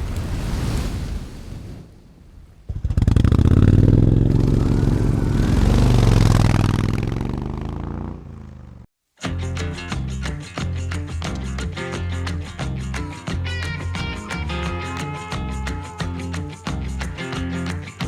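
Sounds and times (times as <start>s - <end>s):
motorcycle engine revving: 2.7s - 8.9s
rock music: 9.2s - 18.0s.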